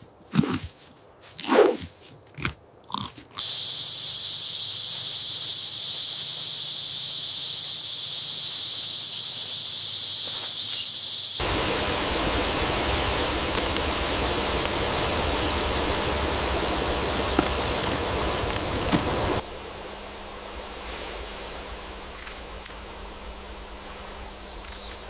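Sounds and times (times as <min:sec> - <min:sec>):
high hiss: 0:03.4 - 0:25.0
even rushing noise: 0:11.4 - 0:25.0.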